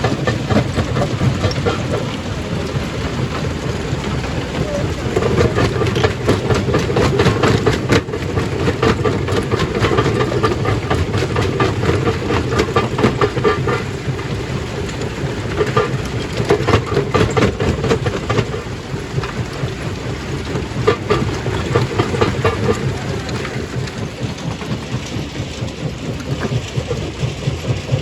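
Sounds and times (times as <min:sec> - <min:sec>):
stone crusher rumbling: 0:00.0 - 0:28.0.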